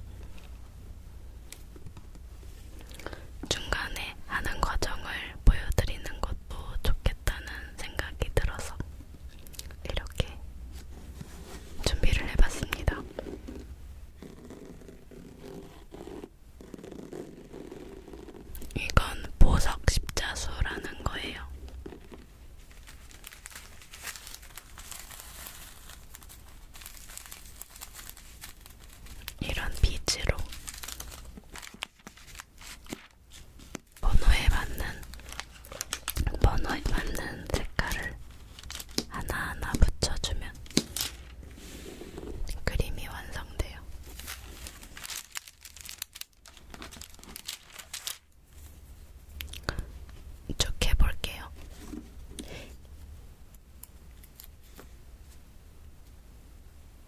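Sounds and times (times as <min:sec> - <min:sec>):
plastic packaging crinkling: 0:21.1 - 0:39.2, 0:40.3 - 0:41.5, 0:44.0 - 0:48.6.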